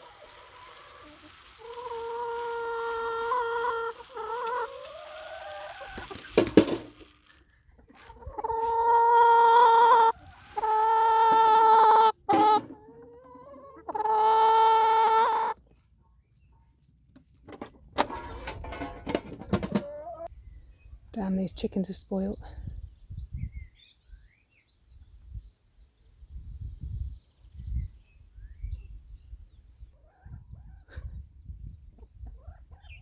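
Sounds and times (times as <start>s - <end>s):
chickens calling: 0.0s - 15.9s, 18.0s - 20.3s, 31.9s - 33.0s.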